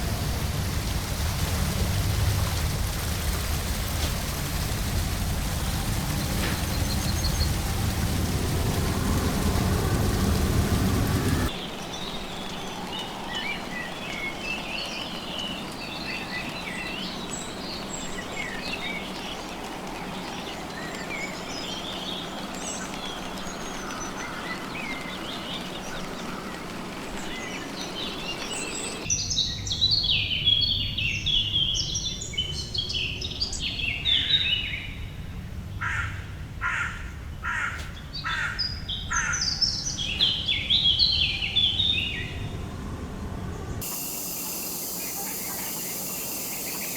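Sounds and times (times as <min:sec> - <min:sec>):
background hiss: 0:00.0 - 0:12.0, 0:43.8 - 0:46.9.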